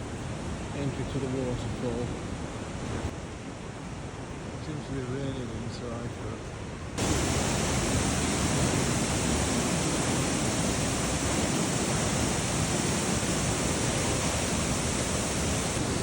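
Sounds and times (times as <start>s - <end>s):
waterfall rushing: 7.0s - 16.0s.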